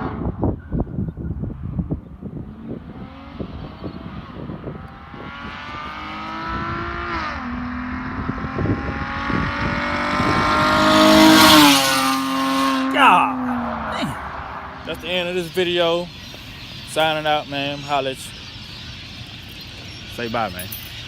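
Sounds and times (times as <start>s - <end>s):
car exhaust accelerating hard: 0.0s - 15.5s.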